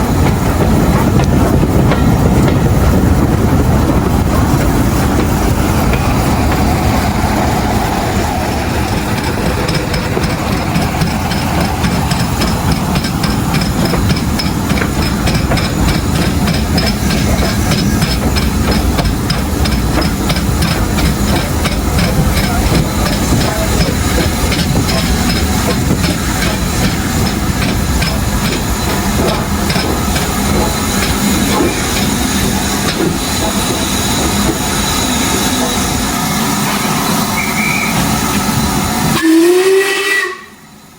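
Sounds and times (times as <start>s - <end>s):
steam hissing: 0.0s - 40.9s
train wheels rumbling and rattling: 0.0s - 40.9s.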